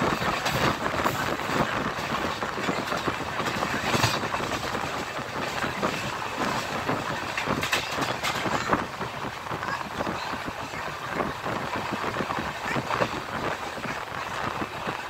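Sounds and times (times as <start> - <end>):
clicks and clacks: 0.0 - 15.0
rumble of wheels on rails: 0.0 - 15.0.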